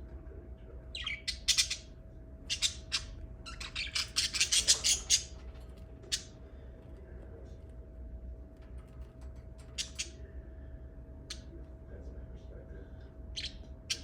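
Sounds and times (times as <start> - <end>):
faint steady hum: 0.0 - 14.0
birds chirping and squawking: 0.8 - 7.0, 8.6 - 11.6, 13.0 - 14.0.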